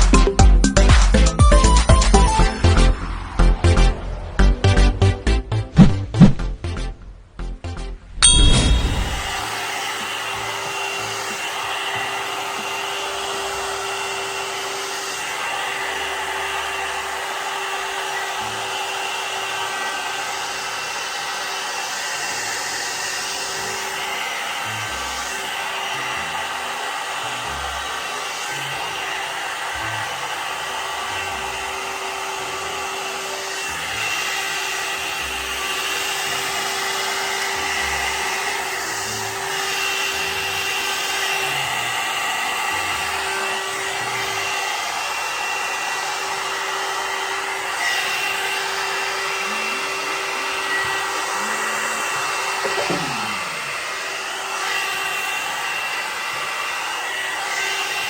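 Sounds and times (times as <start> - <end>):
hair dryer blowing air: 5.8 - 6.4, 8.2 - 58.0.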